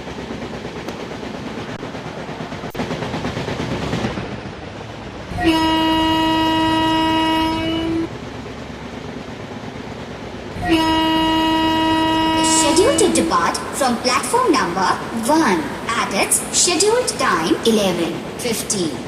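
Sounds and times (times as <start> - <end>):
train rumbling: 0.0 - 19.0
locomotive horn blast: 5.3 - 8.1, 10.6 - 13.7.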